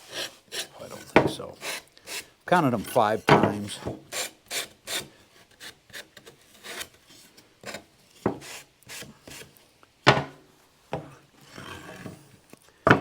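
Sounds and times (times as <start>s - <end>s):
wooden pieces knocking and scraping: 0.9s - 1.6s, 2.6s - 4.0s.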